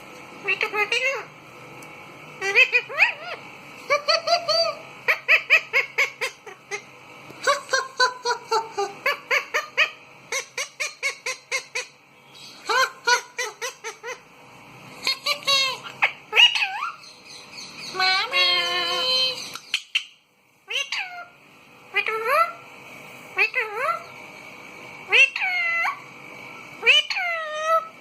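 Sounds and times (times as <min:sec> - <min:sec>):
parakeet shrill calls: 0:02.4 - 0:14.2, 0:15.0 - 0:21.4, 0:25.1 - 0:26.0, 0:26.8 - 0:27.9.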